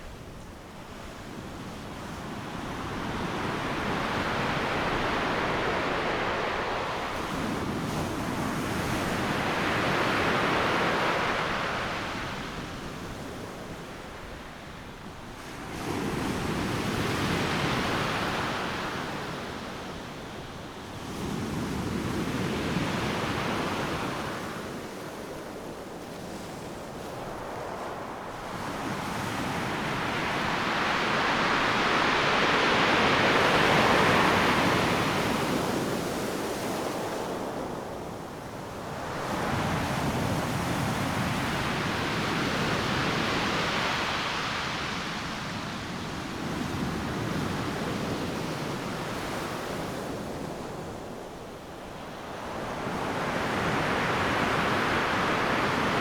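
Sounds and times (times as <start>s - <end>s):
ocean waves breaking: 3.6s - 8.5s, 27.0s - 37.6s.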